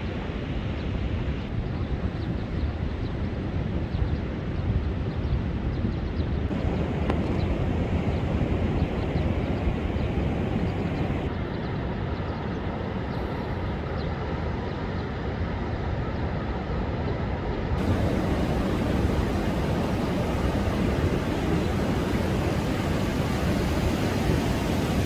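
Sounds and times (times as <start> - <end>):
rough sea surf breaking: 6.5 - 11.3, 17.8 - 25.0.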